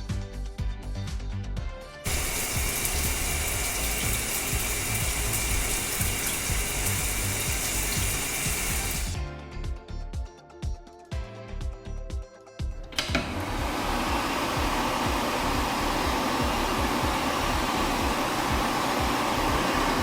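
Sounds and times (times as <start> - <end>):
background music with beat: 0.0 - 20.0
water spraying: 2.1 - 9.2, 13.3 - 20.0.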